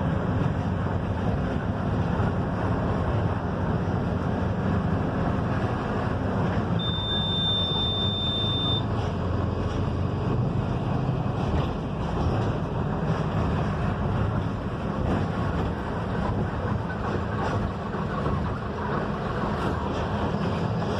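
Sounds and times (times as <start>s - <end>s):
bus engine and road rumble: 0.0s - 20.9s
high steady beep: 6.8s - 8.9s.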